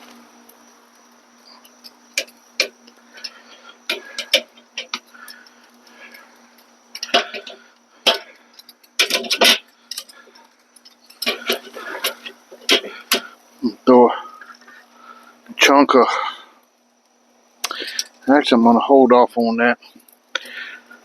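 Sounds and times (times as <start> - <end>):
faint steady hum: 0.0 - 21.0
clicks and knocks of handling: 1.6 - 13.4.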